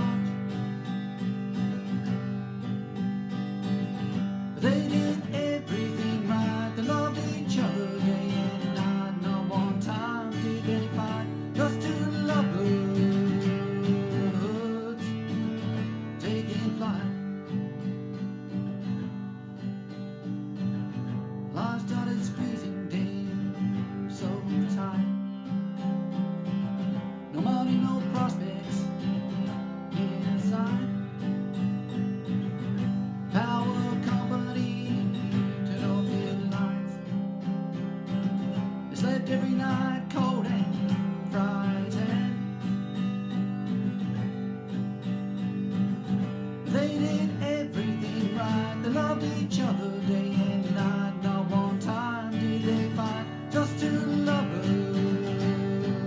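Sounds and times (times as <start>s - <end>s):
acoustic guitar playing: 0.0s - 56.0s.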